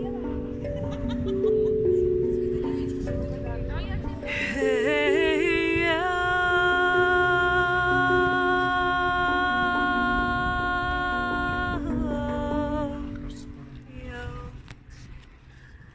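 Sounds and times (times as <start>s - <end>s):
steel tongue drum tones: 0.0s - 15.7s
low rumbling noise: 0.0s - 15.9s
person singing without words: 4.3s - 14.6s.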